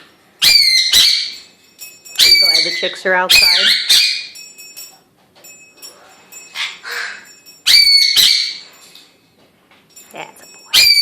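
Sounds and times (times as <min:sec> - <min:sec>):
pet birds squawking: 0:00.4 - 0:01.5, 0:02.2 - 0:04.4, 0:06.1 - 0:08.7, 0:10.7 - 0:11.0.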